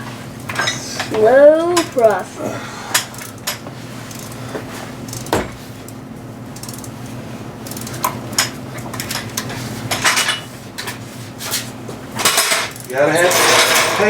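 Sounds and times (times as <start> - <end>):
steady low hum: 0.0 - 14.0
wrench clicking against metal: 6.6 - 6.9, 7.6 - 8.5.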